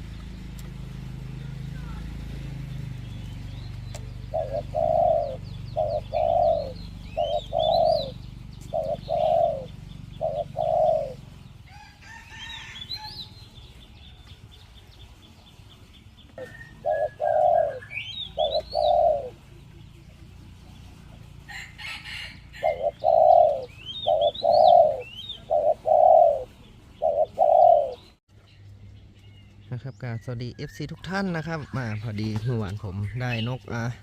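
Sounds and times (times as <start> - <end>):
small birds chirping: 0.0 - 34.0
dove cooing: 0.8 - 13.4, 16.1 - 28.2.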